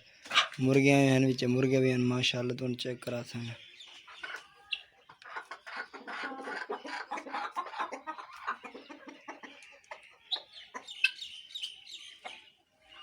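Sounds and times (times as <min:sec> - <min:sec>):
hens clucking: 0:00.0 - 0:01.8, 0:03.1 - 0:13.0
high-pitched chicken calls: 0:03.9 - 0:13.0.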